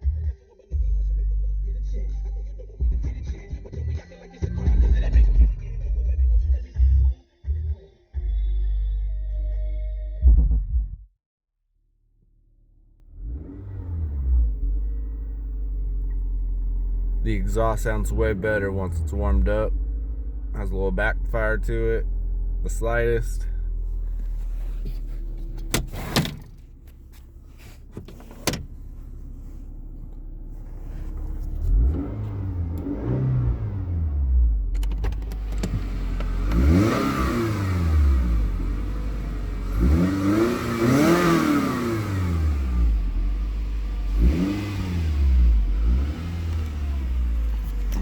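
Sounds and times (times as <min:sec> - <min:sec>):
car engine idling and revving: 0:12.1 - 0:48.0.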